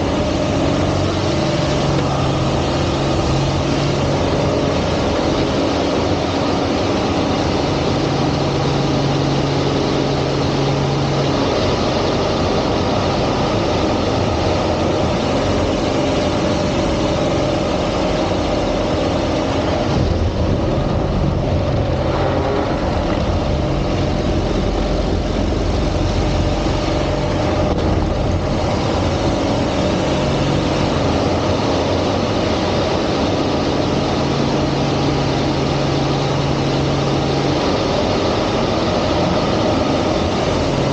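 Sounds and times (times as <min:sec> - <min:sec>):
airplane engine and propeller drone: 0:00.0 - 0:40.9.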